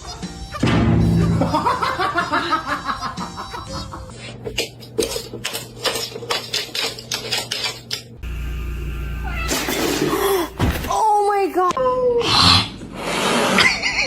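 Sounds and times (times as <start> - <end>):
steady low hum: 8.2 - 10.9
cat meowing: 9.2 - 9.9.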